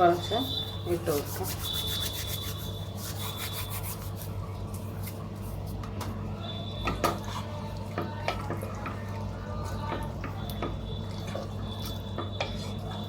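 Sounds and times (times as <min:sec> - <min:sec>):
spoon stirring in a pan: 0:06.8 - 0:13.0.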